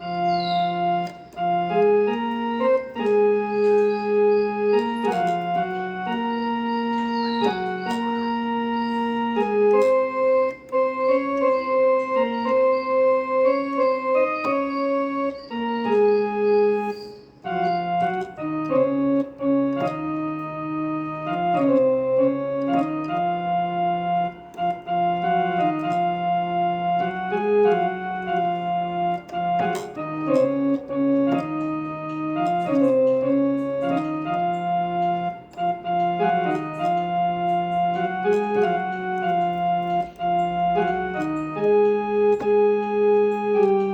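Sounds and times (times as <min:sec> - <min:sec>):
electronic keyboard harmonium melody: 0:00.0 - 0:43.9.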